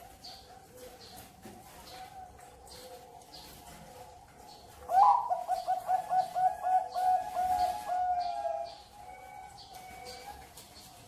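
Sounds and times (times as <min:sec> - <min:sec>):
dove cooing song: 0:00.0 - 0:11.0
faint doves cooing: 0:00.0 - 0:11.0.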